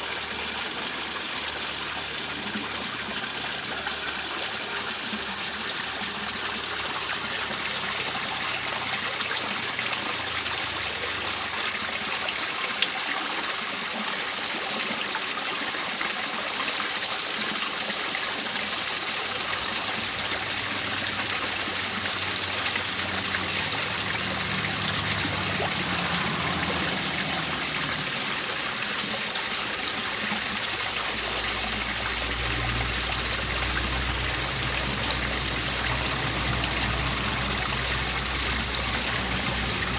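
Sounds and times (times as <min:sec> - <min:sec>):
water splashing into a pond: 0:00.0 - 0:39.9.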